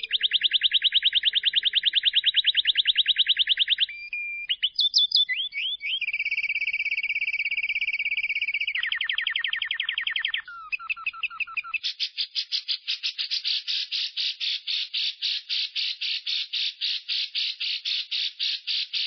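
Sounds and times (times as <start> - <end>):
lovebird rapid shrill trill: 0.0 - 19.0
lovebird harsh calls: 3.8 - 19.0.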